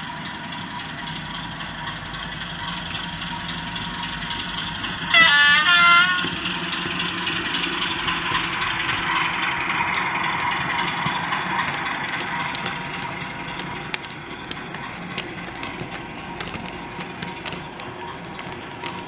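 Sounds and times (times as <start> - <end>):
model train locomotive engine noise: 0.0 - 19.0
sharp clicks: 7.3 - 19.0.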